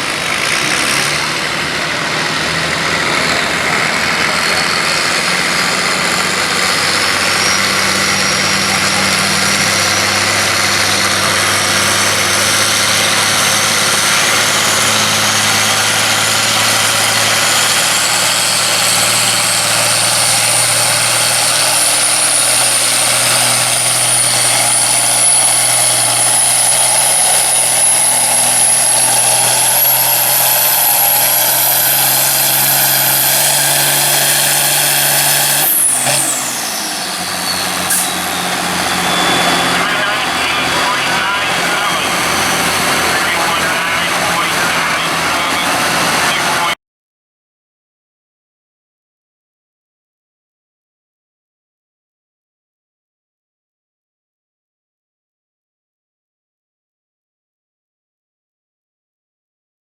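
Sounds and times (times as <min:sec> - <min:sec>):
high whine: 0:00.0 - 0:46.8
tractor diesel engine under load: 0:00.0 - 0:46.8.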